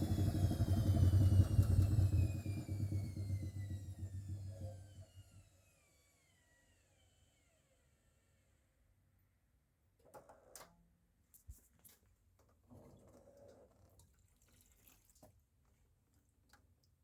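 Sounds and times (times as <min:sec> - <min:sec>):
faint water trickling: 0:13.0 - 0:17.0.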